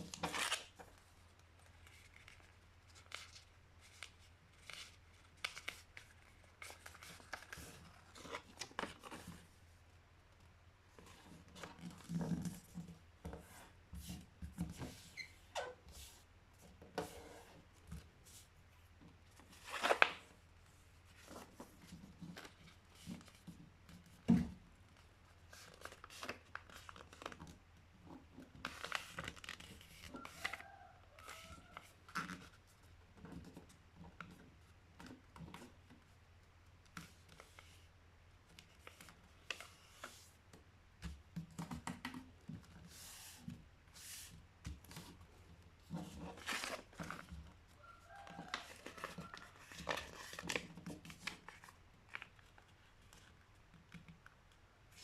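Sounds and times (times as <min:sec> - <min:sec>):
paper being folded and creased: 0:00.0 - 0:01.0, 0:01.6 - 0:09.5, 0:19.4 - 0:20.3, 0:21.1 - 0:24.1, 0:24.9 - 0:27.6, 0:28.4 - 0:34.4, 0:38.5 - 0:40.4, 0:45.8 - 0:47.4, 0:48.0 - 0:54.2.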